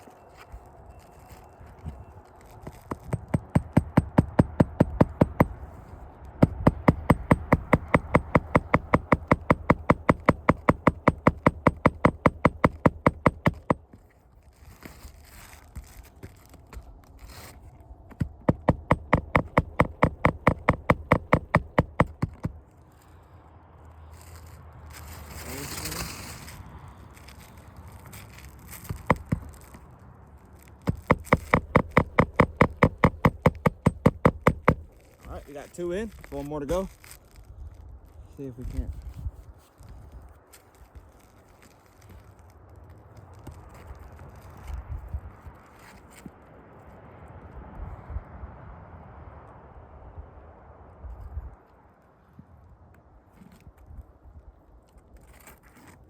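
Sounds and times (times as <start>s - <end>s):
hammer driving nails: 2.6s - 5.6s, 6.4s - 14.0s, 18.1s - 22.6s, 28.8s - 29.8s, 30.8s - 35.0s.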